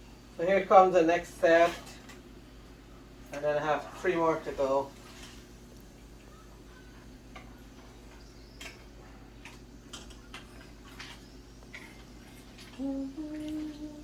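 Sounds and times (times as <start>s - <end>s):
person humming: 12.8s - 14.0s.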